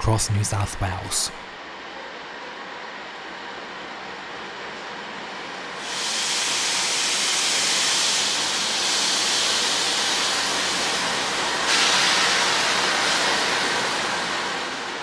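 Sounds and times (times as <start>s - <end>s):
locomotive hissing rush: 5.3s - 15.0s.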